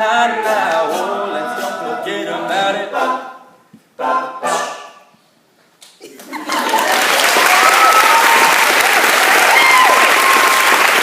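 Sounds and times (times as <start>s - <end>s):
a cappella group singing: 0.0s - 5.0s
audience applause and cheering: 6.4s - 11.0s.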